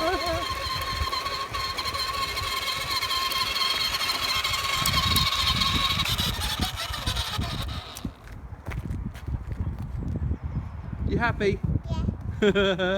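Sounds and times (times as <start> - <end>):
electric toy motorcycle whine: 0.0 - 8.4
wind on microphone: 0.0 - 12.9.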